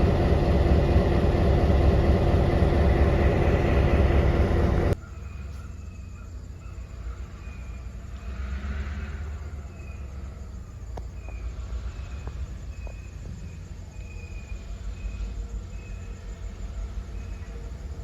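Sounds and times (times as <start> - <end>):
low rumble: 0.0 - 5.0
insects chirping: 0.0 - 18.0.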